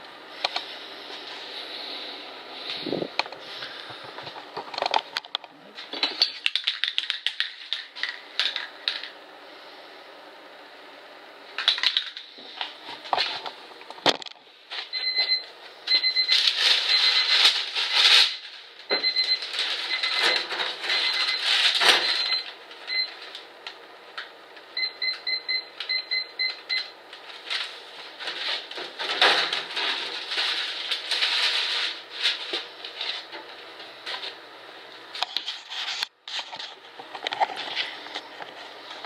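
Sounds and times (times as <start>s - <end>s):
rustling and clattering handling noise: 27.2s - 34.4s, 35.2s - 39.0s.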